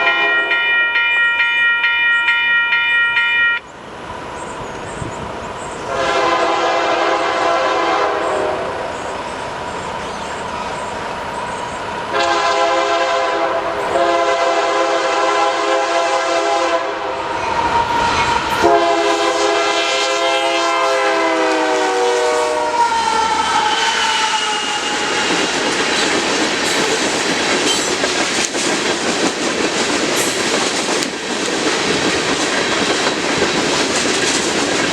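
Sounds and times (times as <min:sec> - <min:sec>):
locomotive air horn blasts: 0:00.0 - 0:03.6, 0:05.9 - 0:08.8, 0:12.1 - 0:17.2, 0:18.5 - 0:25.5
train cars rumbling and clattering: 0:03.7 - 0:34.9.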